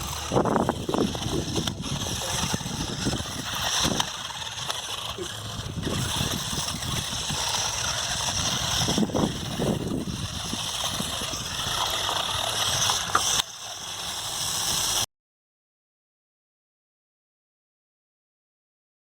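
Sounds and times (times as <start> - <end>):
toy truck motor: 0.0 - 15.1.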